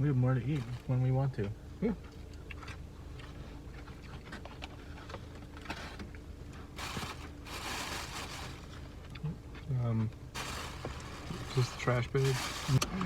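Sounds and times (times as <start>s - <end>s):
car cabin hum and rumble: 0.0s - 13.0s
rustling: 6.8s - 9.0s, 10.4s - 13.0s.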